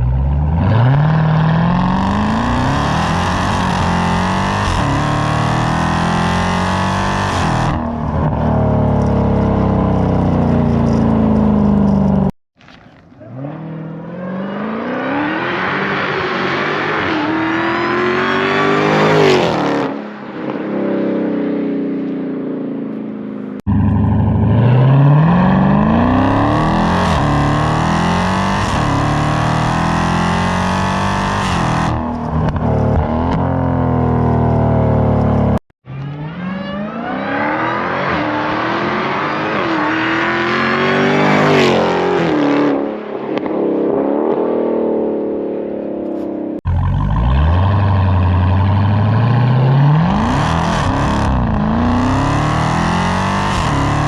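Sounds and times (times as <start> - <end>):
car engine accelerating hard: 0.0 - 12.3, 23.6 - 43.5, 46.1 - 54.0.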